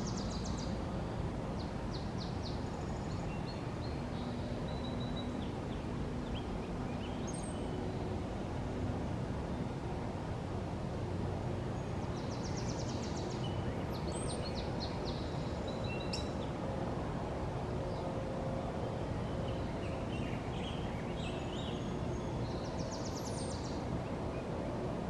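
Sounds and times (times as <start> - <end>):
birds singing: 11.8 - 16.6, 18.8 - 24.8.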